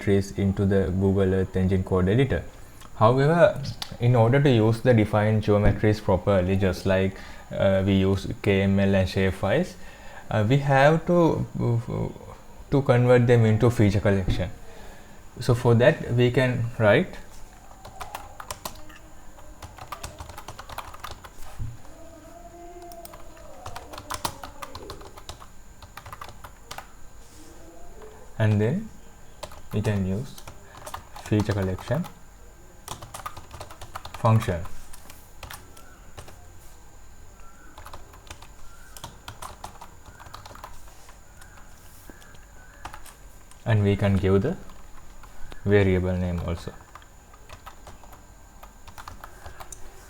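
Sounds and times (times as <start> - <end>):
low steady hum: 0.0 - 50.0
typing on computer keyboard: 17.7 - 19.0, 19.6 - 21.5, 22.8 - 26.9, 29.4 - 32.2, 32.9 - 36.4, 37.8 - 40.8, 42.2 - 43.6, 46.8 - 49.8.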